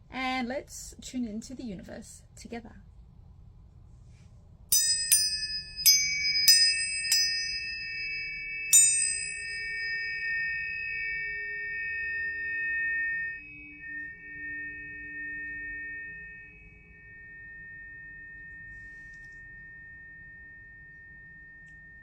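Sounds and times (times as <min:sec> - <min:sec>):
tuning forks ringing: 0:04.7 - 0:22.0.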